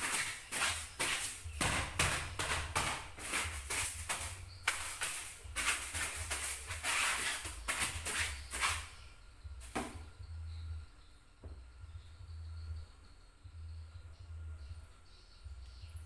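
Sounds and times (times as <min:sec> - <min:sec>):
rustles and light knocks: 0:00.0 - 0:10.1.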